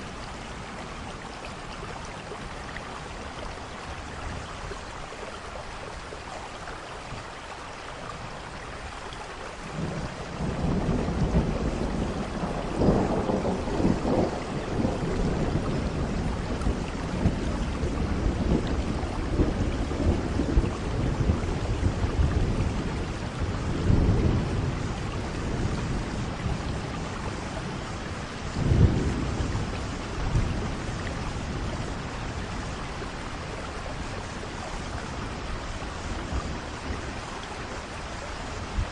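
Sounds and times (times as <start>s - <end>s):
rain falling: 0.0s - 38.9s
low thunder rumbling: 9.6s - 38.9s.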